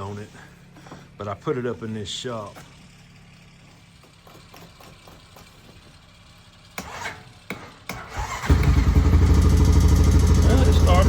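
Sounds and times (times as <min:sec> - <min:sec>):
engine turning over knocks: 0:06.7 - 0:11.0
quad bike engine running: 0:08.2 - 0:11.0.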